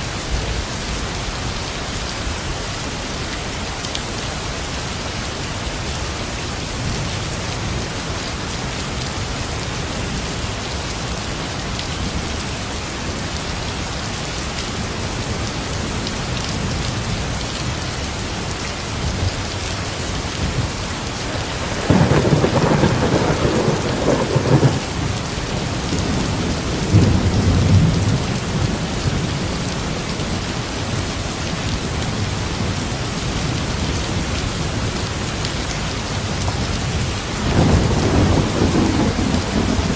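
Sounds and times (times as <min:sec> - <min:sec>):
heavy rain falling: 0:00.0 - 0:39.9
thunder rumbling: 0:20.4 - 0:29.4, 0:37.4 - 0:39.9.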